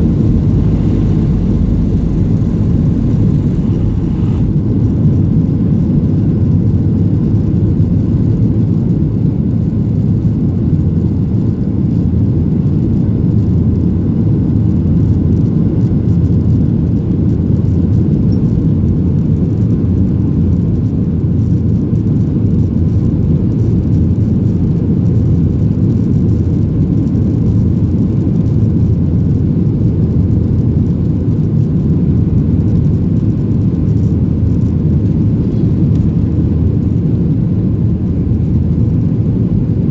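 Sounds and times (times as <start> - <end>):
jet engines rumbling in cabin: 0.0 - 39.9.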